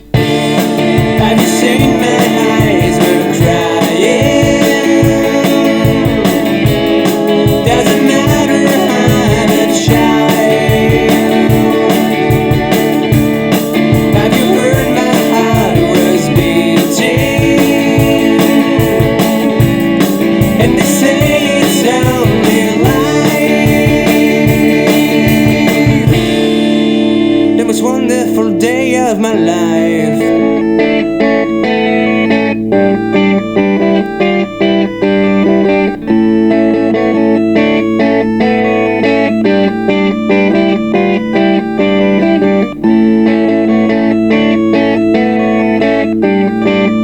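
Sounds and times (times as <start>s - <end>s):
steady drum beat: 0.0s - 27.5s
guitar and organ: 0.0s - 47.0s
wavering melodic lead line: 0.0s - 47.0s.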